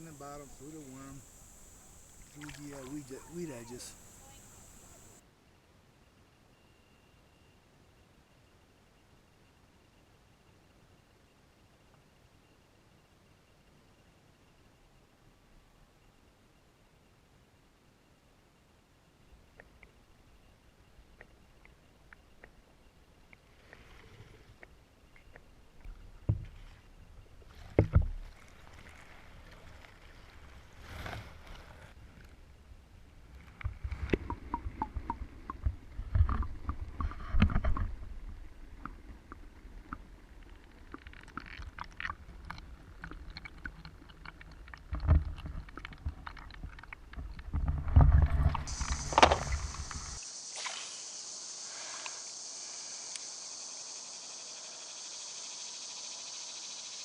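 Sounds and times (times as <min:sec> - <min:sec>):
high insect chorus: 0:00.0 - 0:05.2, 0:48.7 - 0:57.0.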